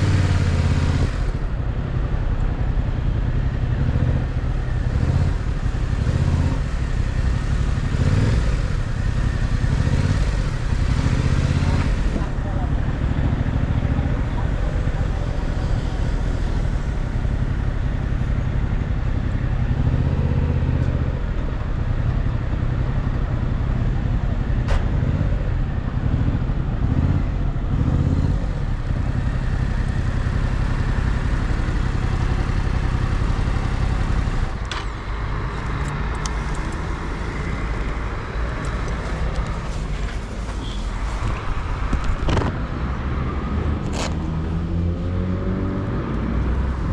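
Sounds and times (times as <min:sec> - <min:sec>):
motorcycle engine running: 0:00.0 - 0:34.7
sharp clicks: 0:35.6 - 0:36.9.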